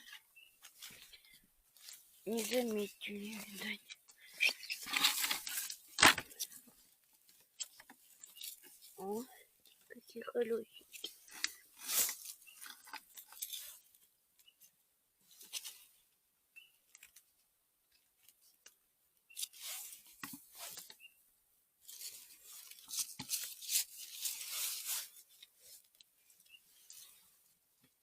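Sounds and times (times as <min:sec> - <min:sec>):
rustling in leaf litter: 0:00.6 - 0:03.8, 0:11.6 - 0:12.7, 0:21.8 - 0:25.9.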